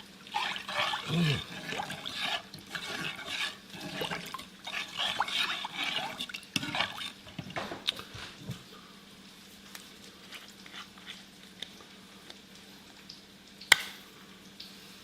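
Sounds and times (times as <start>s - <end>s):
sharp click: 13.7s - 14.0s.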